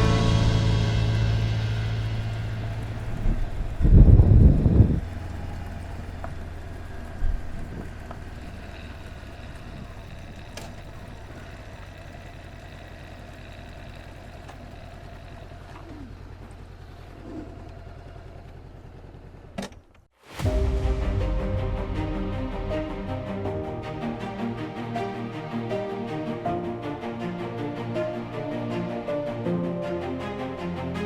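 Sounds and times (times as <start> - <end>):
motorcycle engine idling: 0.1 - 19.6.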